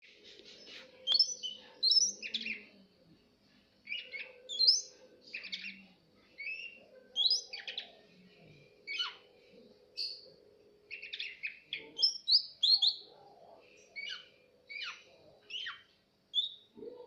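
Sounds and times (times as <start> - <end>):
bird singing chirps and whistles: 1.0 - 2.6, 3.9 - 5.8, 6.4 - 7.9, 10.9 - 13.0, 14.0 - 16.7.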